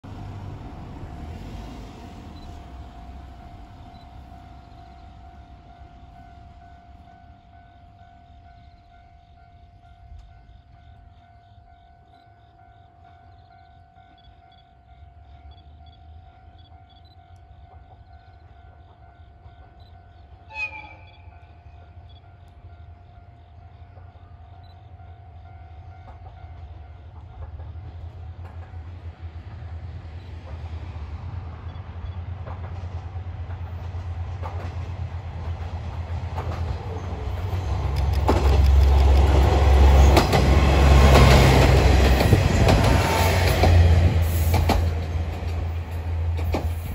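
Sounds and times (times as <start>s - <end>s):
diesel train rumbling: 0.0s - 46.9s
train horn blast: 20.4s - 22.1s
faint regular ticks: 37.8s - 39.4s.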